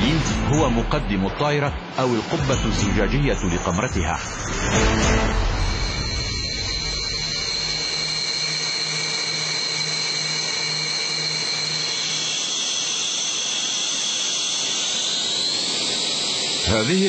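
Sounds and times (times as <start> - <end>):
low pulsing hum: 0.0 - 16.7
jet turbine whine: 0.0 - 17.0
hiss: 4.2 - 17.0.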